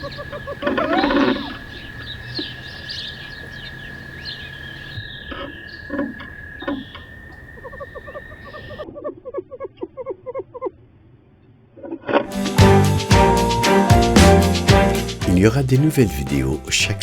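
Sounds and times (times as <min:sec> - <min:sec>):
small birds chirping: 0:00.0 - 0:08.8
plucked music: 0:12.3 - 0:17.0.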